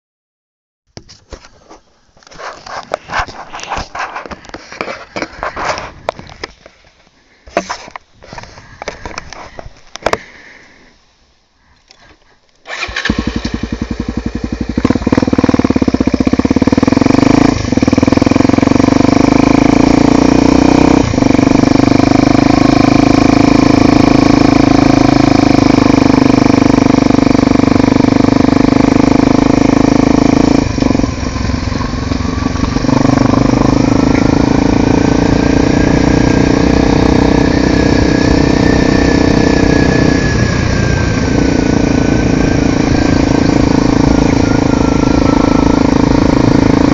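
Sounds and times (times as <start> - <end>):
motorcycle engine running: 12.7 - 46.9.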